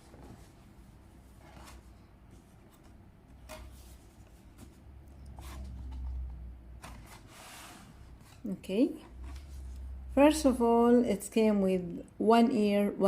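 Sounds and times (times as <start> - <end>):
cardboard scraping and rustling: 0.0 - 8.5.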